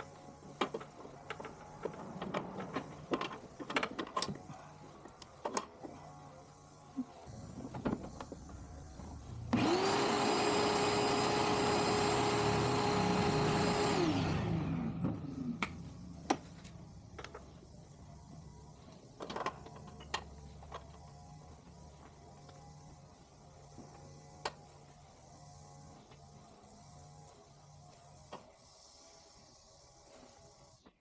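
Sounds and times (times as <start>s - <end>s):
electric motor whining: 7.3s - 16.2s.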